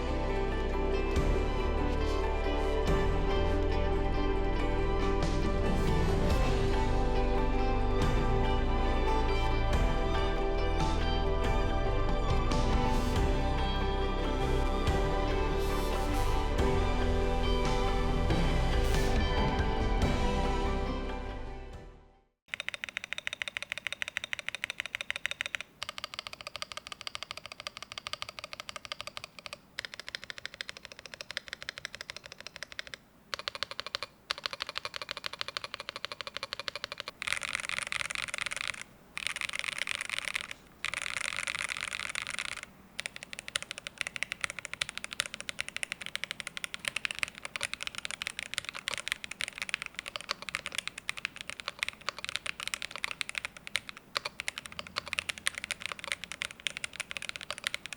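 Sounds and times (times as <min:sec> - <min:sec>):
mechanical keyboard typing: 0:22.5 - 0:57.9.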